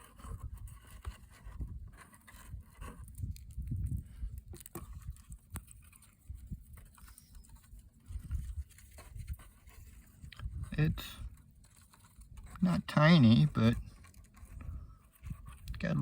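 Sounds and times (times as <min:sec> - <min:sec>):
wind buffeting microphone: 0:00.2 - 0:11.4, 0:13.4 - 0:16.0.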